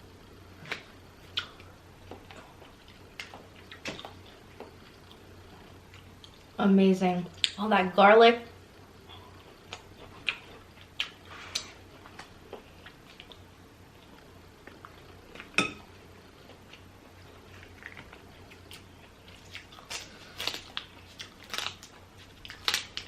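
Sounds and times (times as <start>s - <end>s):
chewing: 0.6s - 6.5s, 9.0s - 15.6s, 16.4s - 23.0s
shellfish shells cracking: 19.5s - 23.0s.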